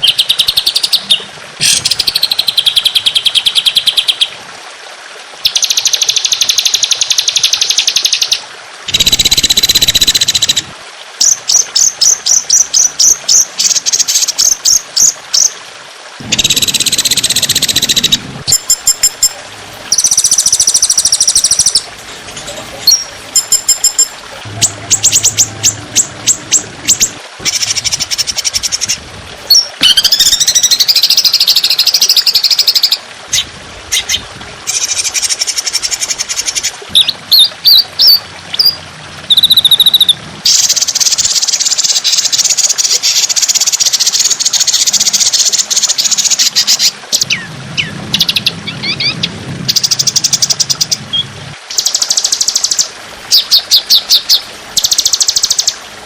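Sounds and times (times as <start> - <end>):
songbird fast rattling trills: 0.0 - 4.3, 16.3 - 33.0, 34.0 - 55.8.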